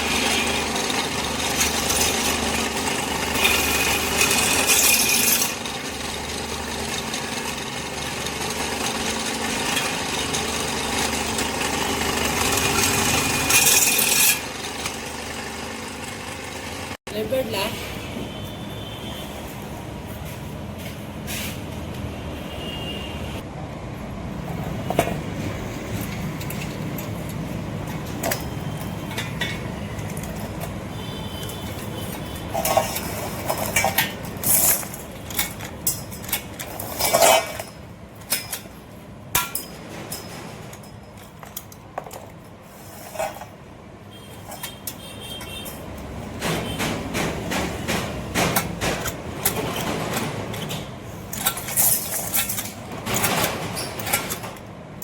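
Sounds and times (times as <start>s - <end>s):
metal clanks and knocks: 24.8s - 43.7s, 44.3s - 54.8s.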